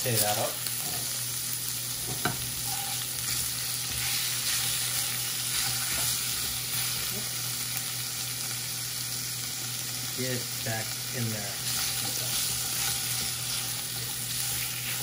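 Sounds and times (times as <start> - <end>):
chicken and onion sizzling in pan: 0.0 - 15.0.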